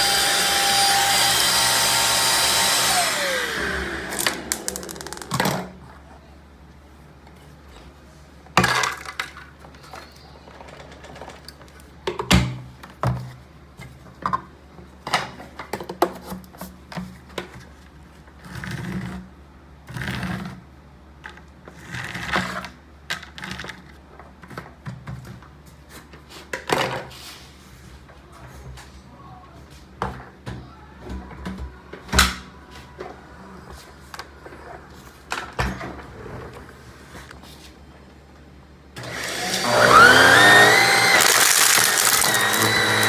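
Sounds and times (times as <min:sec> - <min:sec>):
plastic parts clicking and knocking: 0:04.1 - 0:05.8, 0:41.1 - 0:43.0
debris rustling: 0:40.7 - 0:43.0.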